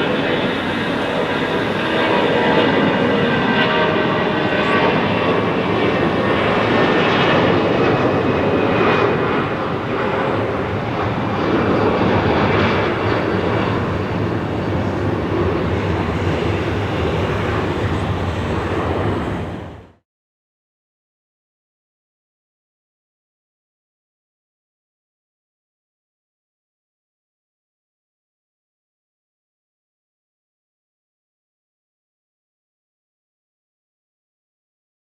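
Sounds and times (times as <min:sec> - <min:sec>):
jet engines rushing with whine: 0:00.0 - 0:20.0.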